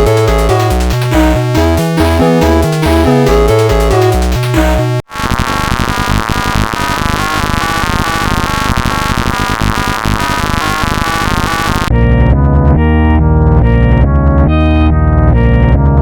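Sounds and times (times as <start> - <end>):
clashing wall of synth tones: 0.0 - 5.0
synth melody: 0.0 - 5.0, 11.9 - 15.6.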